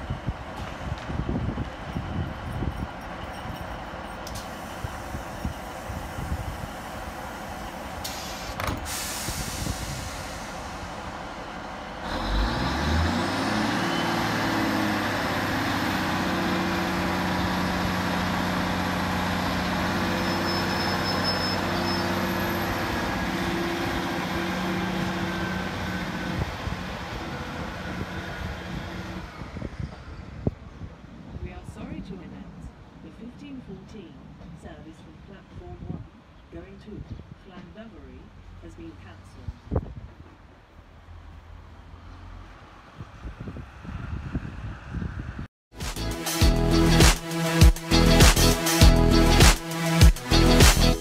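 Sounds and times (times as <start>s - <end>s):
diesel railcar engine accelerating: 0.0s - 36.5s, 39.6s - 51.0s
air hiss: 8.0s - 10.9s.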